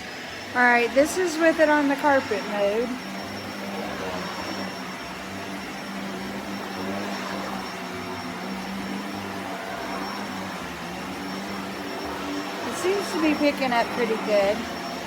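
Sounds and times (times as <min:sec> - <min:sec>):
vacuum cleaner running on carpet: 0:00.0 - 0:15.0.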